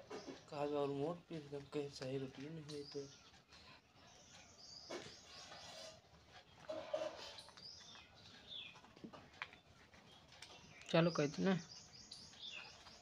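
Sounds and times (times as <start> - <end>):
faint bird chirps: 2.4 - 8.9, 9.5 - 13.0.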